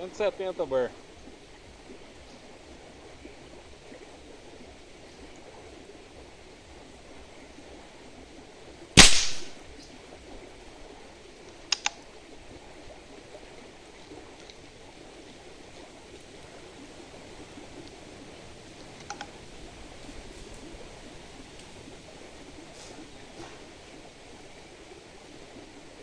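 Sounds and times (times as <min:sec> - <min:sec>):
air rifle shot crack: 0:09.0 - 0:09.6.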